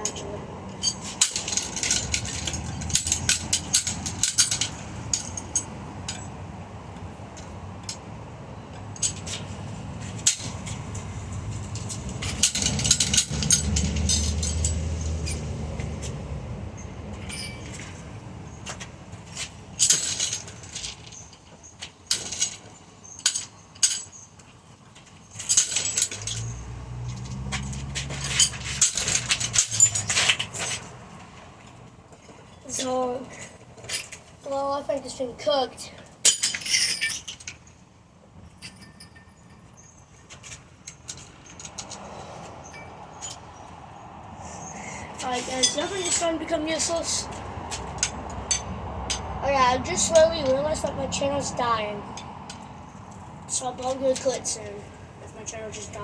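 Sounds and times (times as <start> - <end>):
metal clanking and rattling: 0.0 - 6.3, 8.9 - 15.6, 16.8 - 21.4, 22.1 - 30.9.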